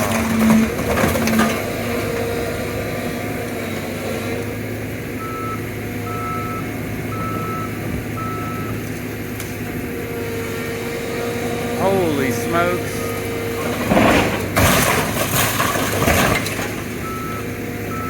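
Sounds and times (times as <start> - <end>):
diesel engine running: 0.0 - 18.0
back-up alarm beeping: 5.2 - 8.8, 12.0 - 13.3, 17.0 - 18.0.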